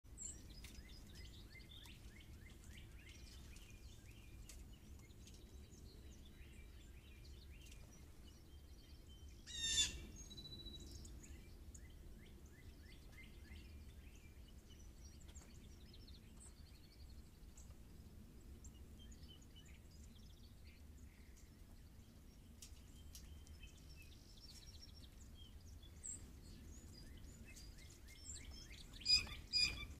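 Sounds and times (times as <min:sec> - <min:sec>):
wild birds chirping and calling: 0:00.3 - 0:17.7, 0:18.6 - 0:30.0
loud harsh bird call: 0:09.5 - 0:10.1.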